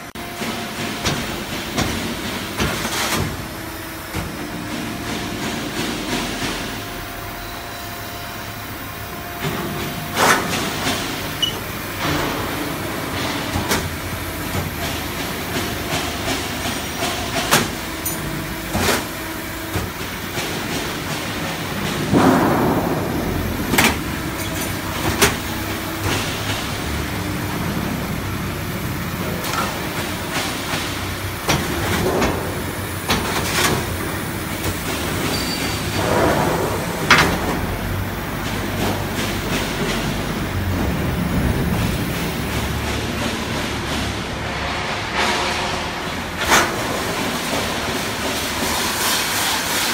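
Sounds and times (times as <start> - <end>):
machine hum: 18.3 - 35.2
metallic clanks and knocks: 21.8 - 26.6.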